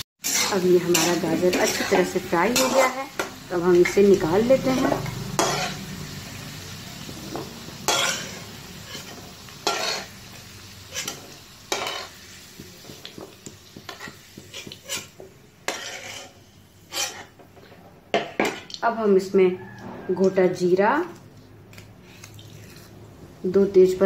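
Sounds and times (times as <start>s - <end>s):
food sizzling in hot oil: 0.0s - 17.5s
metal spatula scraping pan: 0.2s - 6.1s, 7.0s - 12.2s, 13.8s - 18.7s.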